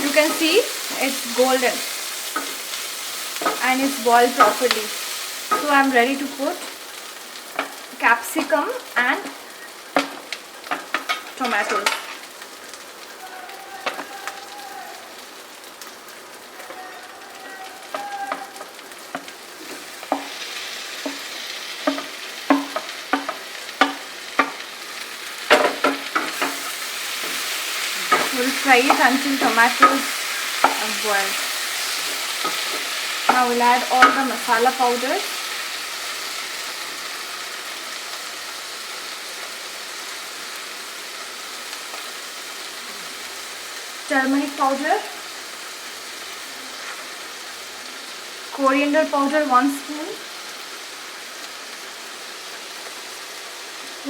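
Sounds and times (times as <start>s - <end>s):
vegetables sizzling in oil: 0.0s - 54.0s
spatula knocking against pan: 21.9s - 24.6s.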